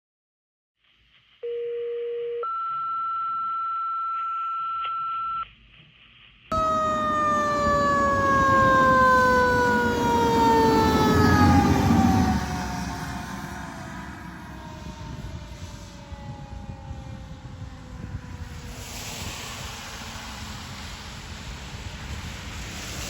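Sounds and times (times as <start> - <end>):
two-tone radio pager tones: 1.4 - 5.5
fire truck siren: 6.5 - 19.2
engine rumble: 6.5 - 23.0.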